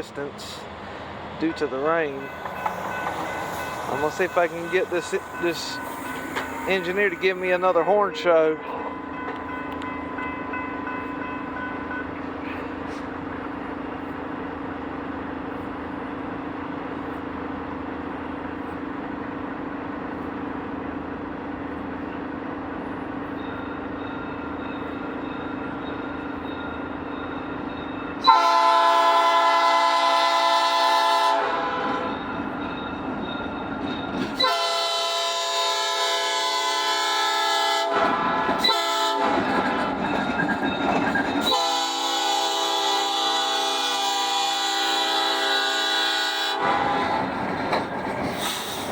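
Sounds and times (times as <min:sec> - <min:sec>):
diesel locomotive running: 0:00.0 - 0:48.9
locomotive air horn blast: 0:28.2 - 0:32.1, 0:34.4 - 0:39.4, 0:41.5 - 0:47.2.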